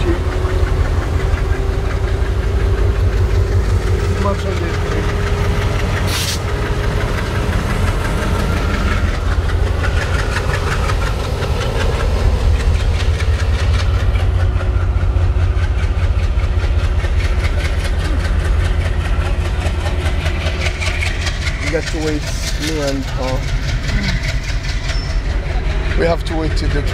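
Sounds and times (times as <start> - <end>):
engine idling with rapid knocking: 0.0 - 26.9.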